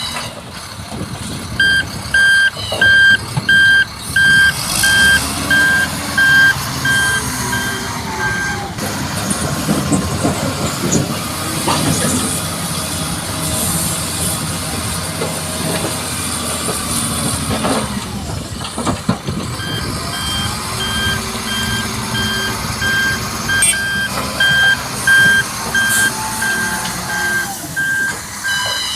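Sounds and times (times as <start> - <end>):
heavy truck engine running: 0.0 - 28.9
reversing alarm beeping: 1.6 - 8.8, 19.6 - 28.9.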